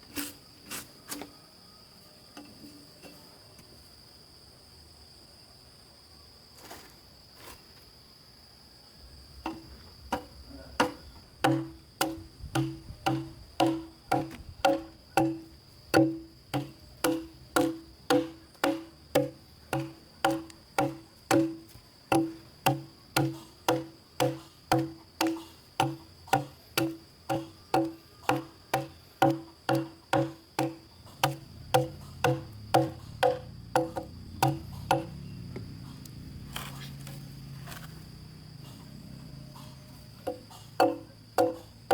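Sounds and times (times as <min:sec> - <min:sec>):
insect high whine: 0:00.0 - 0:41.9
sharp ringing knocking blows: 0:10.8 - 0:35.3, 0:40.2 - 0:41.9.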